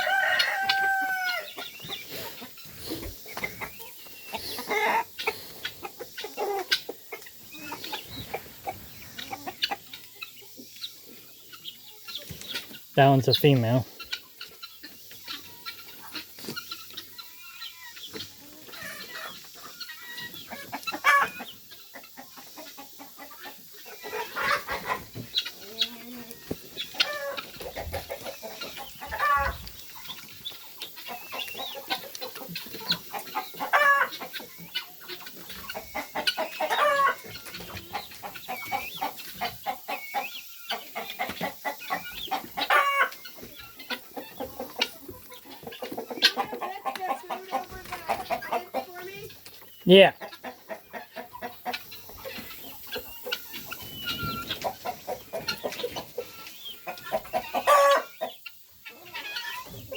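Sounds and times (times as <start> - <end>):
chickens clucking: 0.0 - 59.9
chicken squawking: 2.1 - 9.9, 26.9 - 29.7, 35.7 - 38.0, 41.0 - 49.1, 57.0 - 58.2.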